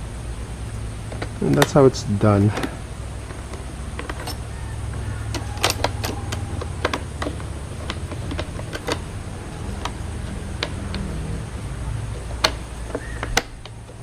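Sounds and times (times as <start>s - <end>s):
steady low hum: 0.0s - 14.0s
clicks of machine parts handled: 5.3s - 9.1s.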